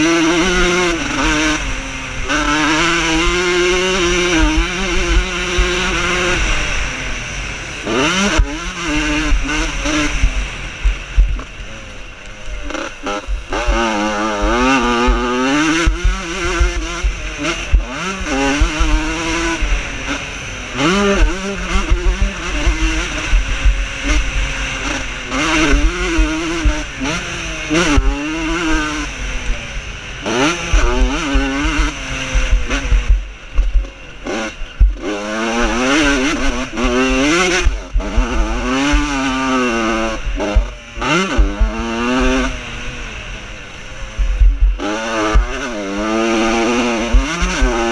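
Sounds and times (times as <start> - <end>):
motocross motorcycles revving: 0.0 - 47.9.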